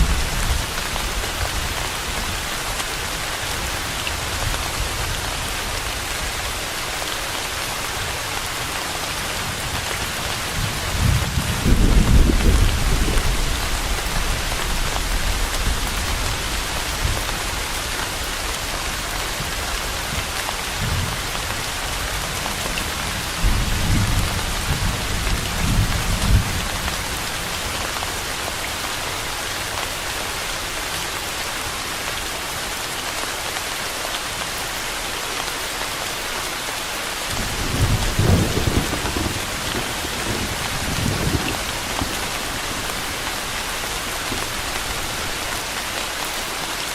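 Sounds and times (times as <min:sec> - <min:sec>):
steady rain hiss: 0:00.0 - 0:46.9
low thunder rumbles: 0:09.5 - 0:17.7, 0:37.4 - 0:45.4.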